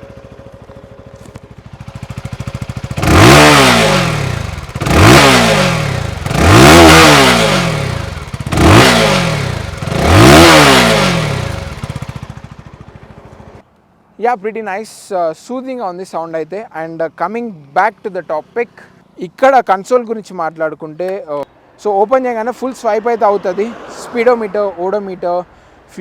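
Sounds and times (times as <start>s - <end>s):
motorcycle engine idling and revving: 0.0s - 13.8s.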